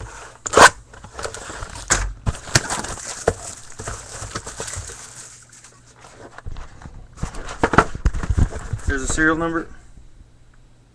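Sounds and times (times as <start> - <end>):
packaging crackling: 0.5 - 6.0.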